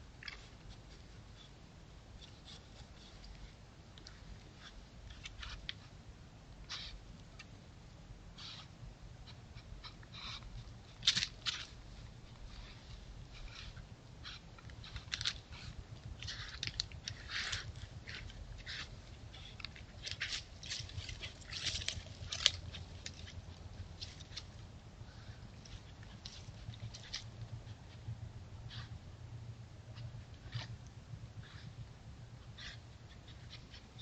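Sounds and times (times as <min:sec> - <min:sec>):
faint low hum: 0:00.0 - 0:34.0
dry crackling and rustling: 0:09.6 - 0:28.2.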